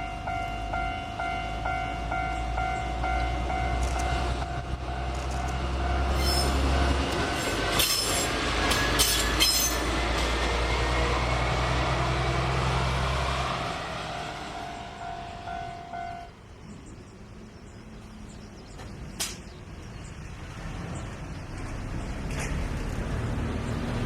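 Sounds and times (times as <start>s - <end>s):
diesel locomotive engine running: 0.0s - 24.0s
wheels squealing and clanking: 5.0s - 10.6s.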